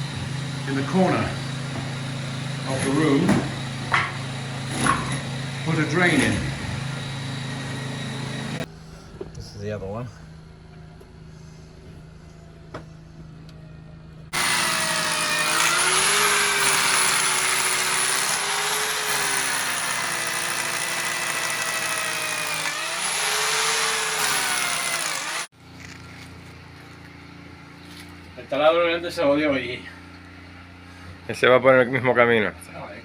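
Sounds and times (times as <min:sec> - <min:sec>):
electric drill boring stone: 0:00.0 - 0:08.7, 0:14.4 - 0:25.5.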